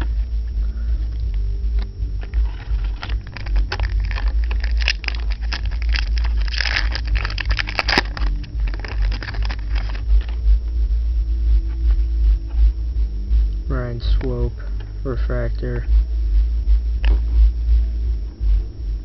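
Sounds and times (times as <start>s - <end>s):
steady low rumble: 0.0s - 19.0s
card packaging rustling and crackling: 1.0s - 10.5s.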